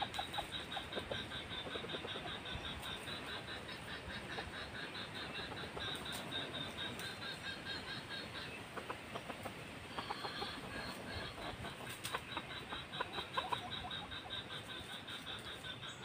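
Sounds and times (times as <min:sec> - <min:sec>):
rustling in dry leaves: 0:00.0 - 0:01.4, 0:05.4 - 0:13.6
rooster clucking softly: 0:00.0 - 0:16.0.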